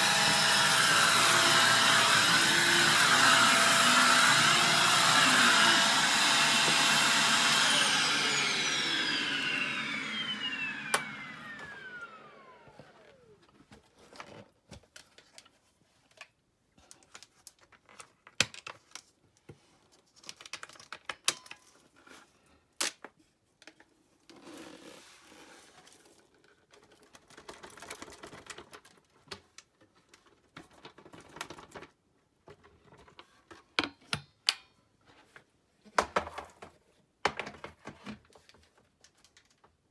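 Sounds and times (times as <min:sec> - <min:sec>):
vacuum cleaner motor winding down: 0:00.0 - 0:13.4.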